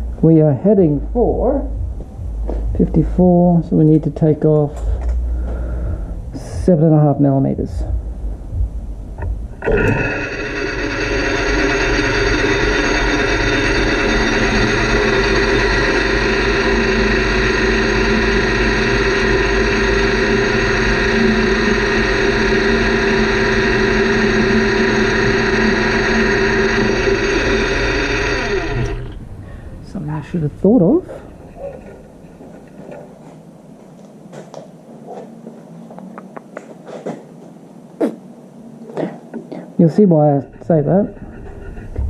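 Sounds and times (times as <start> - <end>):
metal lathe cutting metal: 9.5 - 33.3, 39.9 - 42.0.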